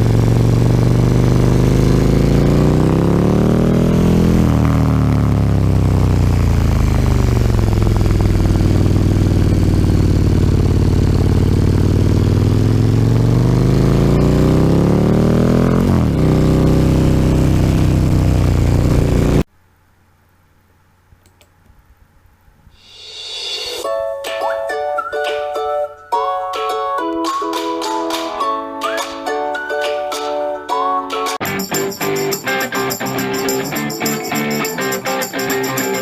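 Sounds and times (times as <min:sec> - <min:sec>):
motorcycle engine running: 0:00.0 - 0:19.5, 0:31.4 - 0:36.0
ukulele music: 0:23.8 - 0:36.0.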